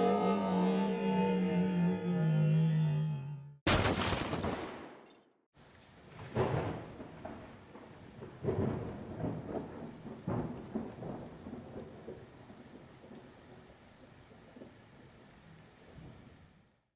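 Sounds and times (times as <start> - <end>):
steady rain: 5.6 - 16.9
rolling thunder: 6.1 - 12.7.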